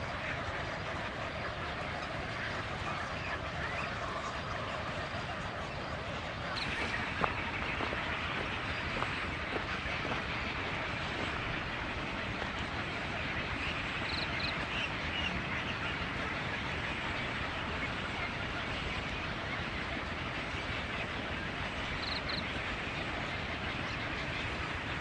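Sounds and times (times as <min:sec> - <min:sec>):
steady outdoor noise: 0:00.0 - 0:25.0
high bird chirps: 0:06.6 - 0:09.1.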